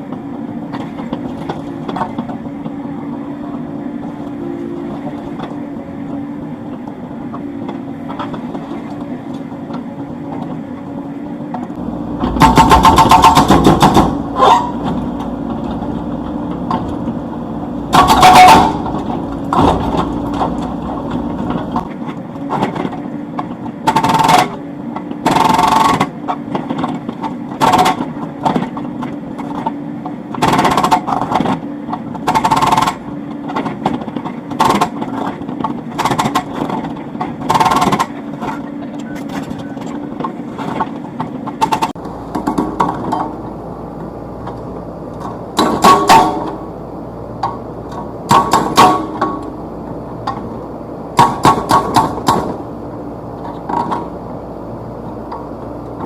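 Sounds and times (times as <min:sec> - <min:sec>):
excavator engine running: 0:00.0 - 0:56.0
hydraulic breaker hammering: 0:12.2 - 0:15.6, 0:17.9 - 0:21.9, 0:22.5 - 0:24.6, 0:25.2 - 0:28.8, 0:30.3 - 0:38.7, 0:45.5 - 0:46.7, 0:48.2 - 0:49.6, 0:51.2 - 0:52.6.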